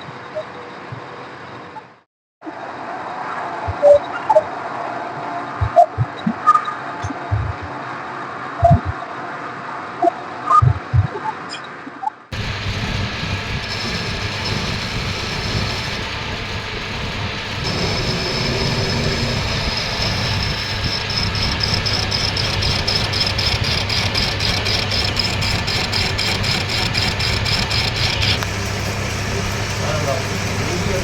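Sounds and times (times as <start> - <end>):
lathe motor hum: 12.3 - 31.0
high-pitched whine: 12.4 - 31.0.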